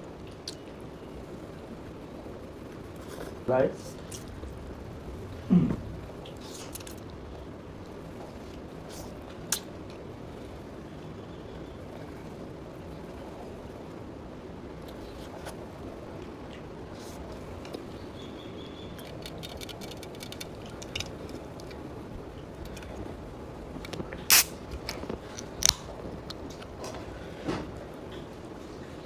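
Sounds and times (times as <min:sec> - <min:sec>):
low background rumble: 0:00.0 - 0:29.0
person chewing: 0:05.6 - 0:07.1.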